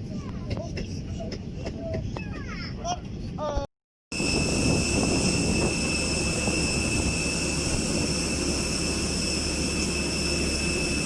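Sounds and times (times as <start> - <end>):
jet engines running: 4.1 - 11.0.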